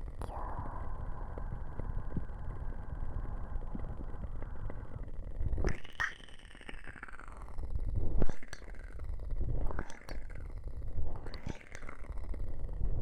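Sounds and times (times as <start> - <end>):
muffled low rumble: 0.0 - 5.9, 7.4 - 13.0.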